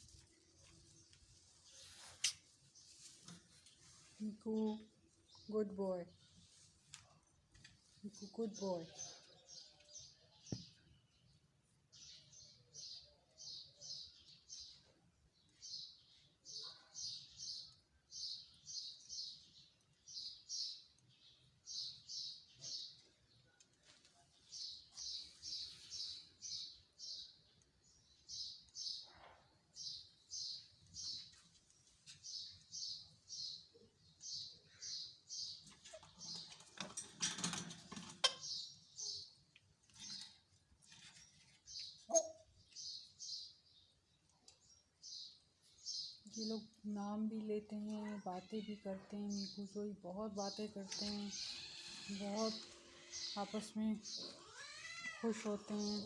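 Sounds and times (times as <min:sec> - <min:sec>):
rustling: 0:00.0 - 0:04.4
parrot chirping: 0:42.0 - 0:42.4.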